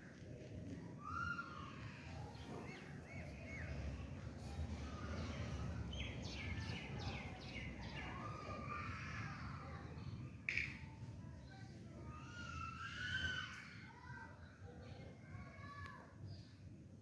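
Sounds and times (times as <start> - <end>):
small birds chirping: 1.3 - 12.6.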